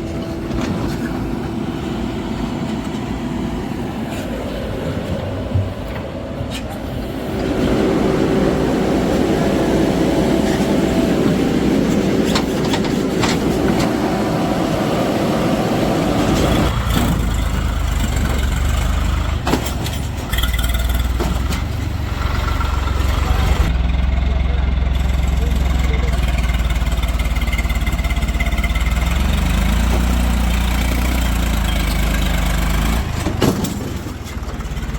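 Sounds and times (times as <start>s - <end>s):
diesel engine running hard: 0.0s - 6.3s, 6.9s - 34.9s
knocks and clatters: 11.9s - 14.0s, 16.4s - 22.0s, 31.7s - 34.9s.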